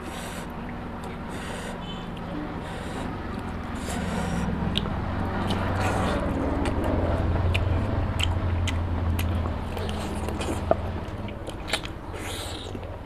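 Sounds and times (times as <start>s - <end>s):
low steady hum: 0.0s - 13.0s
person chewing food: 0.0s - 13.0s
wet mouth clicks and smacks: 4.6s - 12.9s.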